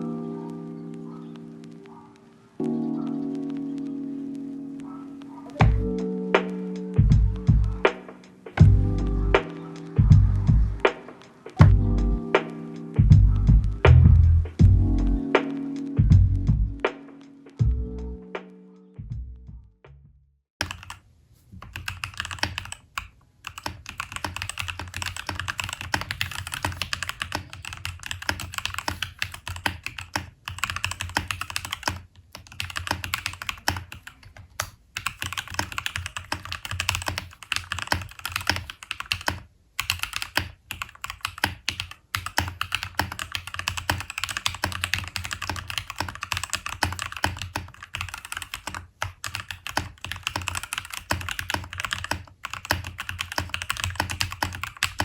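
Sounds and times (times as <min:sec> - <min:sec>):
typing on mechanical keyboard: 0:20.6 - 0:21.0, 0:21.6 - 0:55.0.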